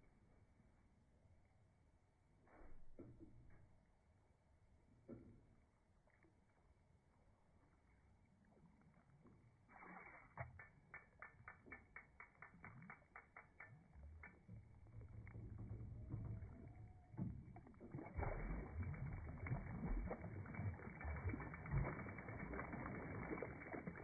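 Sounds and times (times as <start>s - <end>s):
rapid even clicks: 10.4s - 14.6s
boat motor hum: 10.7s - 18.2s
rushing water: 17.2s - 24.0s.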